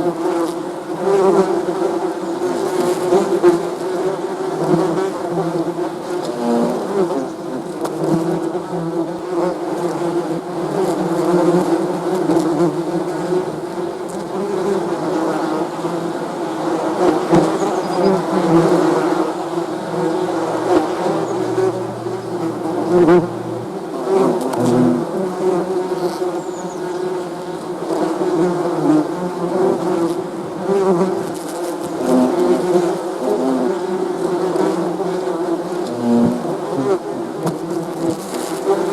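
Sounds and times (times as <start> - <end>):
bees buzzing: 16.4 - 27.5.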